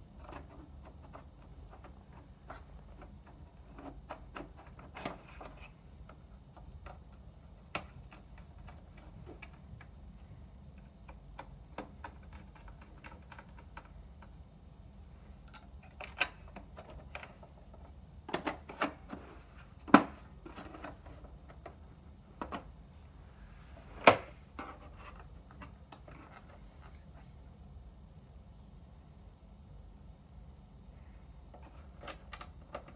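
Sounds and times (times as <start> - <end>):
low steady hum: 0.0 - 32.9
small parts and tools clicking: 10.7 - 14.4.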